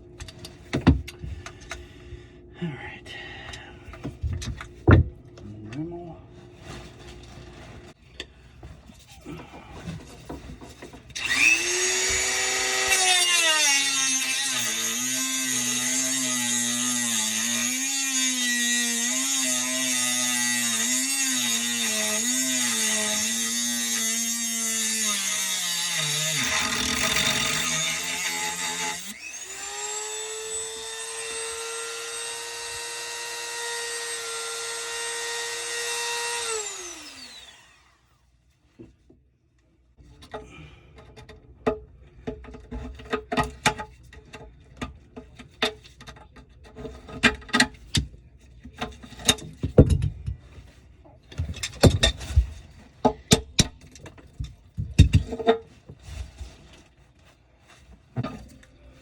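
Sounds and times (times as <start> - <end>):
power tool motor whining: 11.2 - 38.0
clicks knocks and scraping: 40.2 - 50.7, 51.3 - 57.0.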